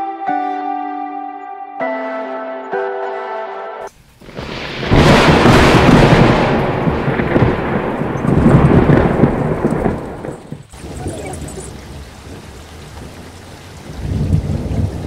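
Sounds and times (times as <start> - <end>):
background music: 0.0 - 3.9
heavy rain with low rumble: 3.9 - 15.0.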